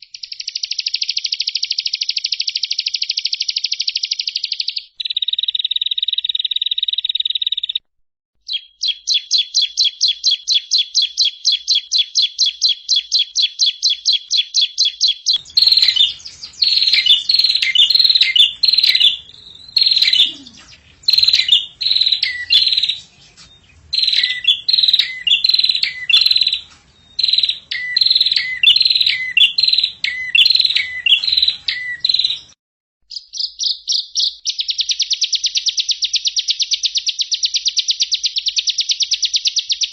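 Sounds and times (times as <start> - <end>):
down-slurred whistled bird notes: 8.5 - 39.9
high bird trill: 15.0 - 35.4
faint background noise: 15.4 - 32.5
fast buzzing bird trill: 15.4 - 32.5
rapid high bird notes: 15.4 - 32.6.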